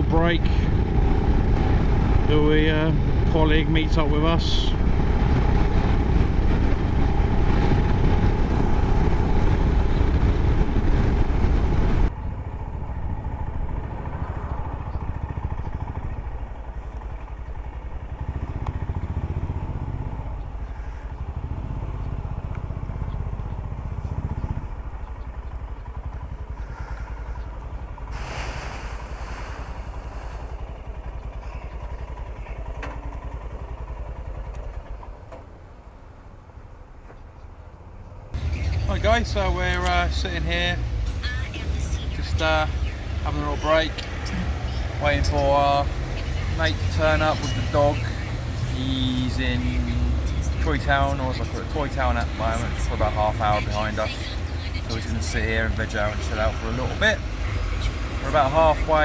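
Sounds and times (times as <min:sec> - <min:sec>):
wind noise: 0:00.0 - 0:16.4
motorcycle engine at speed: 0:00.0 - 0:59.0.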